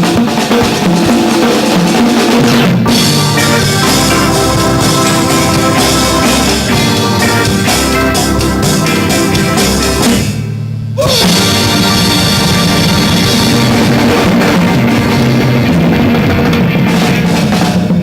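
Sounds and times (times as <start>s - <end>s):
bass guitar: 0.0s - 18.0s
drum kit: 0.0s - 18.0s
electric guitar: 0.0s - 18.0s
low held note: 0.6s - 8.6s.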